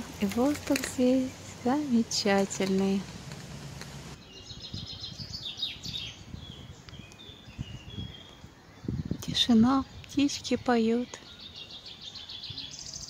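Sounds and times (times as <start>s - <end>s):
low outdoor rumble: 0.0s - 4.2s
songbirds chirping: 0.0s - 13.0s.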